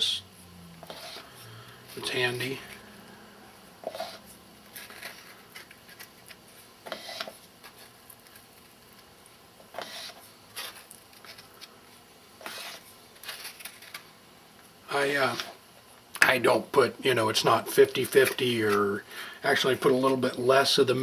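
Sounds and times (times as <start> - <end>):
paste wax scraped from tin: 0.8 - 1.3, 3.8 - 6.1, 9.7 - 11.5, 12.4 - 14.0.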